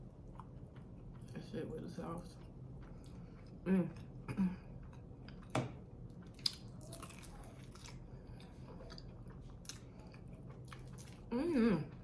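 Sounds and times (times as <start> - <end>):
wet chewing: 0.0 - 12.0
crunching into fried food: 6.1 - 11.3.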